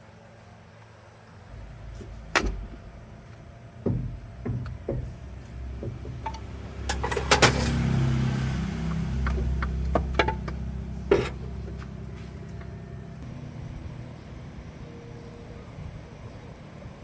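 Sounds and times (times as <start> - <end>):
engine rumbling: 0.0 - 17.0
sharp metallic clunks: 1.5 - 13.2.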